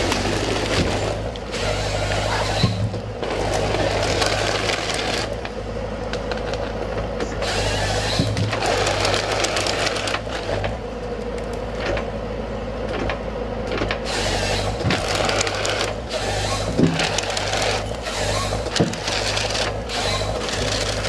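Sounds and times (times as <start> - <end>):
diesel engine humming: 0.0 - 21.0
timber knocks and cracks: 16.7 - 17.4.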